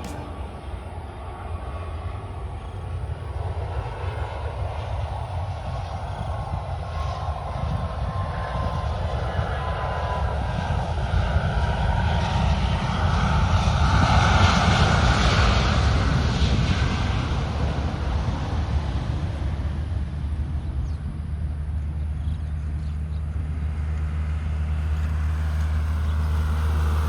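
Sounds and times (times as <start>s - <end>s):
airliner engine passing: 0.0s - 27.0s
steady low rumble: 0.0s - 27.0s.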